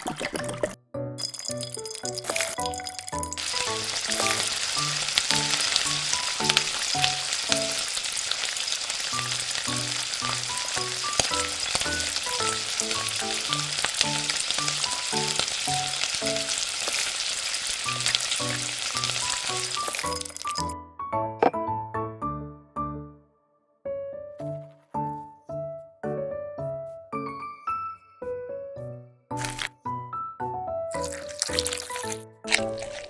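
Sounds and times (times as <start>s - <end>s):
light background music: 0.2s - 7.9s, 9.2s - 16.6s
food sizzling in hot oil: 1.2s - 20.8s, 31.0s - 33.0s.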